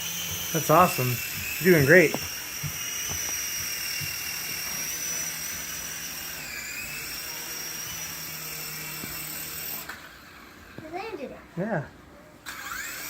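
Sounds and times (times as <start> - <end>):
toy helicopter rotor whine: 0.0 - 11.3, 12.4 - 13.0.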